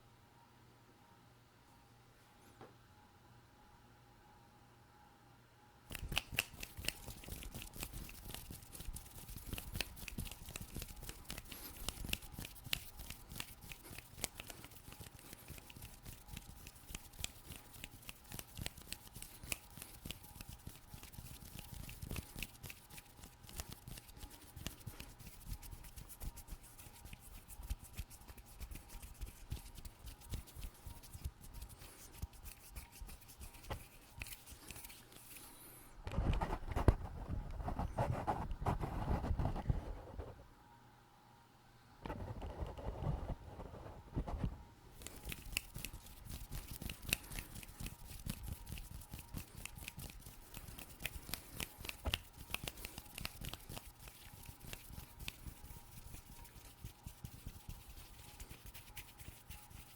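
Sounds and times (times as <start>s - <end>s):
fingers clicking and rubbing: 5.9s - 35.5s, 45.0s - 59.9s.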